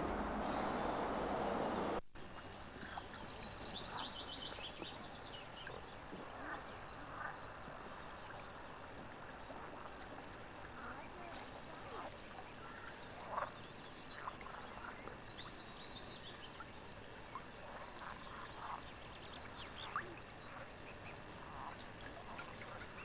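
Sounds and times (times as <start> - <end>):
loud rushing noise: 0.0 - 2.0
small birds chirping: 2.2 - 23.0.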